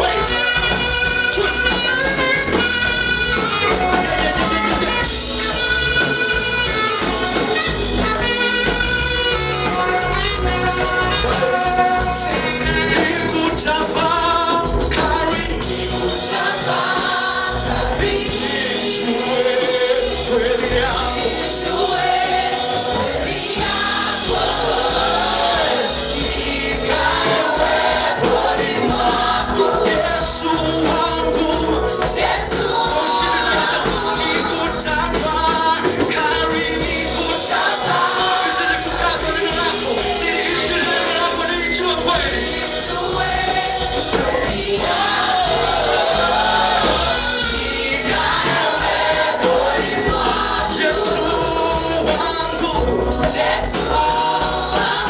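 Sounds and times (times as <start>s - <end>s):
gospel choir singing: 0.0s - 55.0s
instrumental accompaniment: 0.0s - 55.0s.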